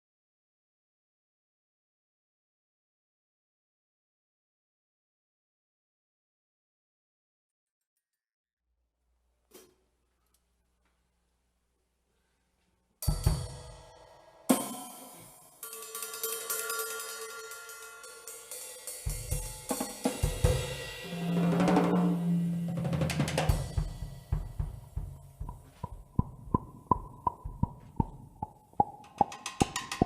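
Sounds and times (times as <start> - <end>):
band improvising: 21.0 - 28.0.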